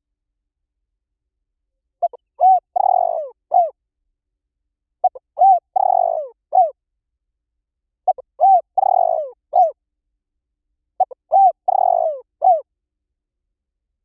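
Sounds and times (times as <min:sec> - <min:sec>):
dove cooing: 0:02.0 - 0:03.8, 0:05.0 - 0:06.8, 0:08.1 - 0:09.8, 0:11.0 - 0:12.7.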